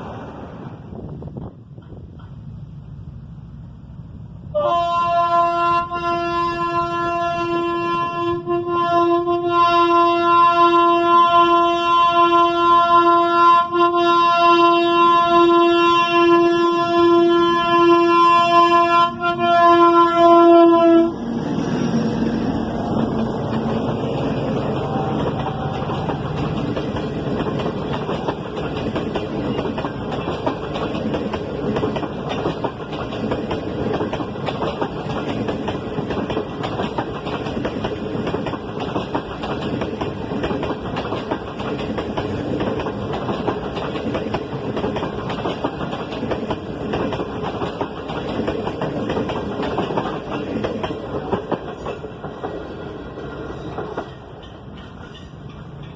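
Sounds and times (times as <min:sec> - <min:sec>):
locomotive horn: 0:04.5 - 0:21.2, 0:24.7 - 0:26.2
train wheels clacking over rail joints: 0:22.9 - 0:55.9.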